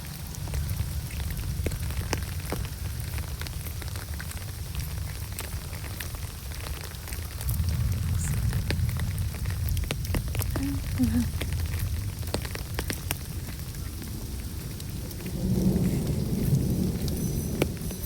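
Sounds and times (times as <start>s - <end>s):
low rumble: 0.0s - 12.3s
rain falling: 0.0s - 18.0s
raindrop ticks: 0.0s - 18.0s.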